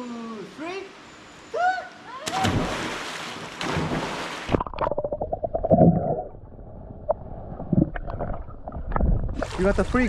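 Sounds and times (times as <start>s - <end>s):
stream water splashing: 2.2s - 10.0s
underwater bubbling and gurgling: 4.5s - 9.8s.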